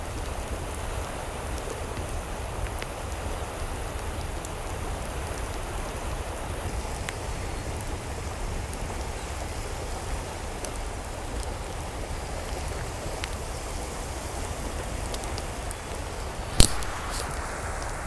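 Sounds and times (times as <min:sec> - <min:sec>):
rushing water: 0:00.0 - 0:18.0
small drip-like clicks: 0:00.0 - 0:18.0
sharp loud click: 0:16.6 - 0:17.4.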